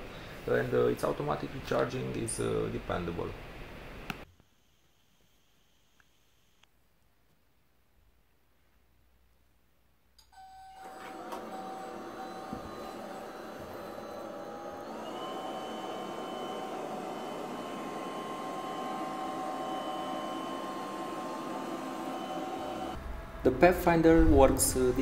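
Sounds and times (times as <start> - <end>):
robot vacuum motor whine: 10.4 - 23.4.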